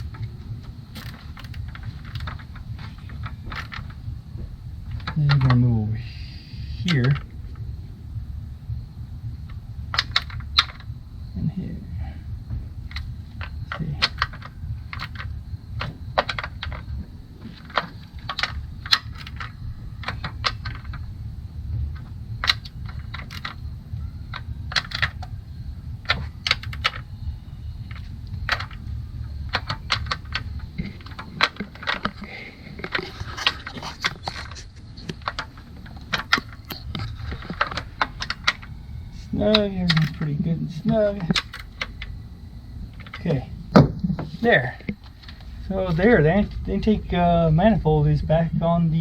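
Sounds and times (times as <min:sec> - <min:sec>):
steady low rumble: 0:00.0 - 0:49.0
hand ratchet clicking: 0:12.8 - 0:21.2, 0:27.7 - 0:38.8.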